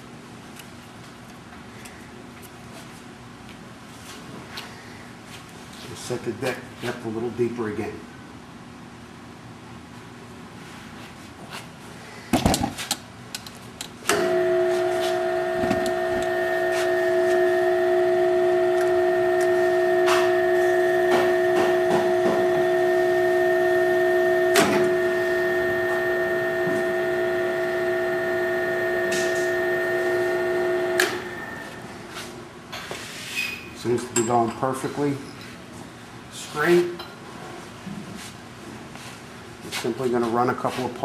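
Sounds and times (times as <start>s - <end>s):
tapping machine motor hum: 14.1s - 31.8s.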